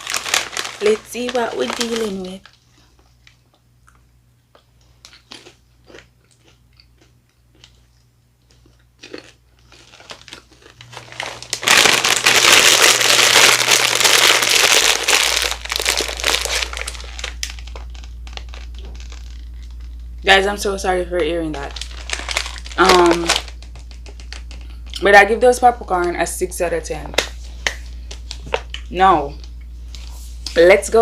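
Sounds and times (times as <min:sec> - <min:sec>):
snack bag crinkling: 0:00.0 - 0:04.0, 0:04.9 - 0:20.2, 0:21.2 - 0:25.0
popcorn crunching: 0:00.0 - 0:25.1.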